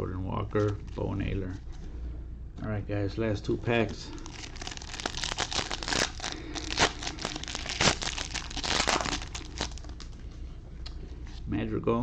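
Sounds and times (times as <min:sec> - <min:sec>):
plastic wrapper tearing and crinkling: 0:04.1 - 0:10.2.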